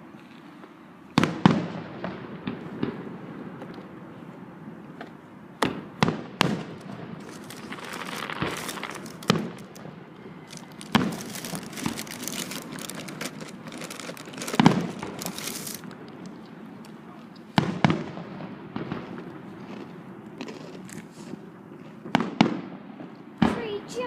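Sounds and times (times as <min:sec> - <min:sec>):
fireworks bangs: 0:05.6 - 0:16.8
fireworks crackling: 0:05.6 - 0:19.6.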